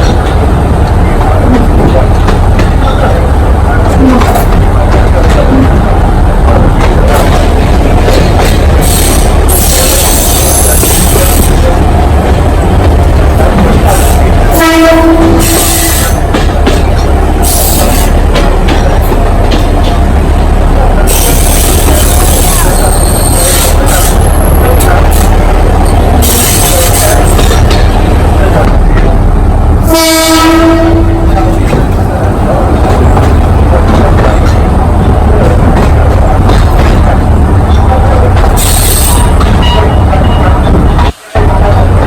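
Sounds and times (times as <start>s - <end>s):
train rumbling: 0.0s - 42.0s
train horn blast: 14.5s - 16.2s, 29.8s - 31.5s.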